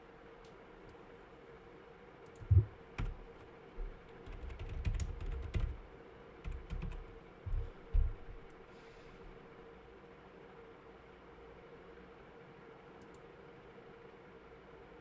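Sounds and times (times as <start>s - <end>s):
typing on computer keyboard: 2.3s - 5.8s, 6.4s - 8.5s.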